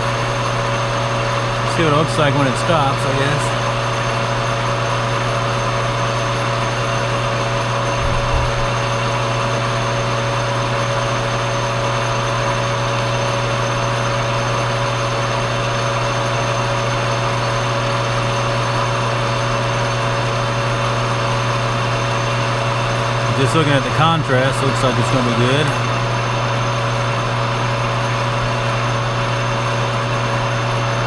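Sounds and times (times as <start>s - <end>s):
lathe running: 0.0s - 31.0s
low bump: 8.0s - 8.8s.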